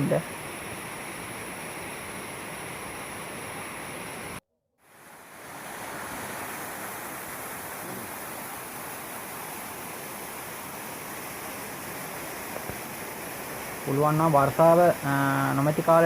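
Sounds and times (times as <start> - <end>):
falling water rushing: 0.0 - 16.0.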